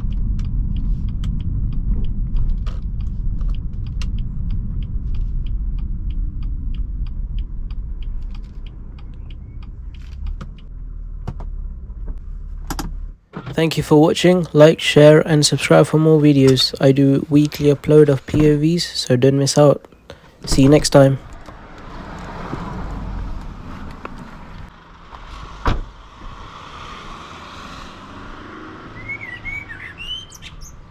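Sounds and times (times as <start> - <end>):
car engine running low: 0.0 - 30.9
birds chirping: 28.9 - 30.9.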